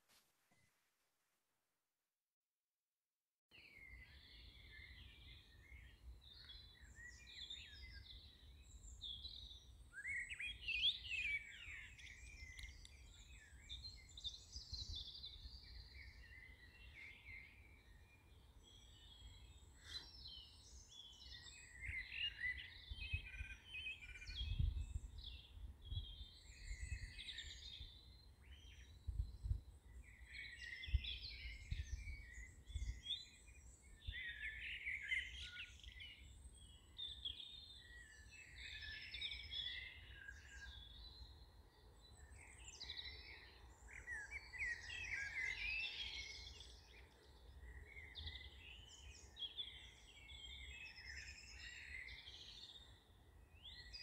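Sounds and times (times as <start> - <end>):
small birds chirping and singing: 3.5 - 54.0.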